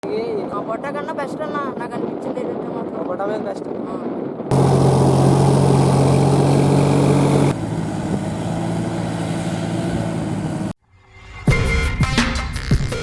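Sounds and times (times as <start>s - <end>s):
tractor diesel engine running: 4.5s - 10.8s.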